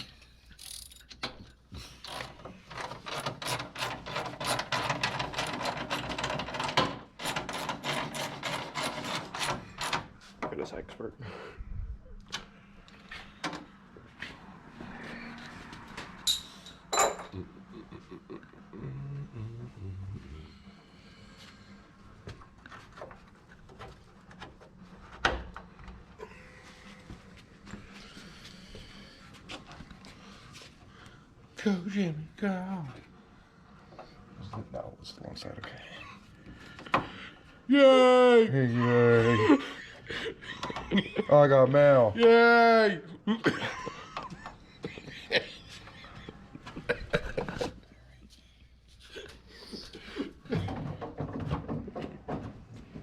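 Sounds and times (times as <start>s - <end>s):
socket ratchet clicking: 0.6s - 1.2s
tools and metal parts clinking: 16.2s - 17.3s.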